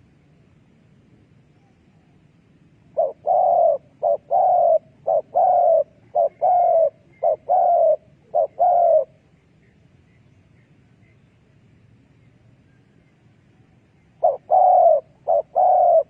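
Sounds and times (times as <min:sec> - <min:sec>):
dove cooing: 0:02.9 - 0:09.2, 0:14.1 - 0:16.0.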